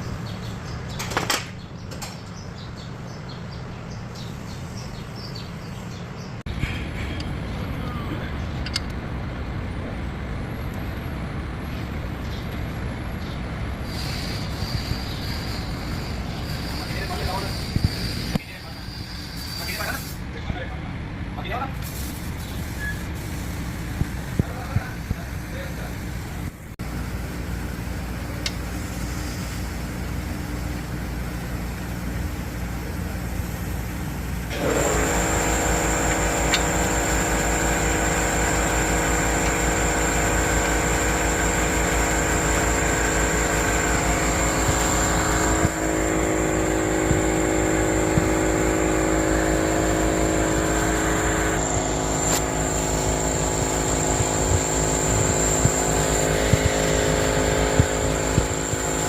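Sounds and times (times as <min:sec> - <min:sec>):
vehicle engine running: 0:23.9 - 0:59.0
multi-tone whine: 0:34.4 - 0:59.0.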